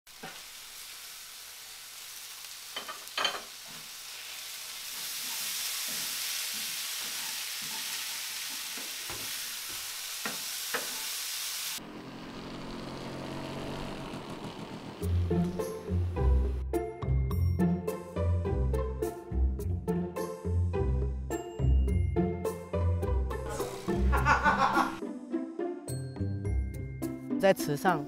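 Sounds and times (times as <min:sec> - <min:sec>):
food sizzling in a pan: 0:00.1 - 0:11.8
soft music: 0:15.0 - 0:28.0.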